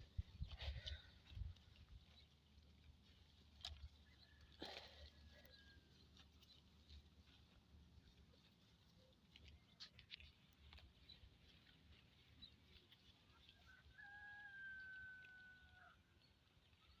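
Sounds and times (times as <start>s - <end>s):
distant rooster crow: 13.6s - 16.1s.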